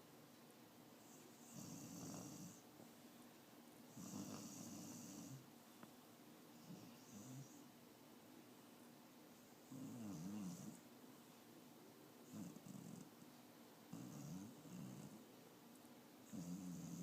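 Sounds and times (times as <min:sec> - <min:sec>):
dog snoring faintly: 0:01.0 - 0:02.7, 0:03.9 - 0:05.5, 0:06.6 - 0:07.7, 0:09.5 - 0:10.9, 0:12.2 - 0:13.2, 0:13.9 - 0:15.3, 0:16.2 - 0:17.0.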